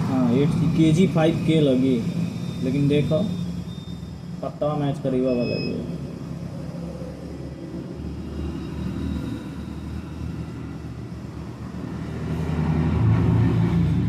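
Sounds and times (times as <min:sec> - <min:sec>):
vehicle engine passing by: 0:06.0 - 0:14.0.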